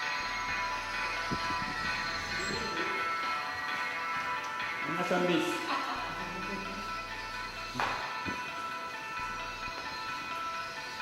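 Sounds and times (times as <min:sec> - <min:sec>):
music with long held tones: 0:00.0 - 0:11.0.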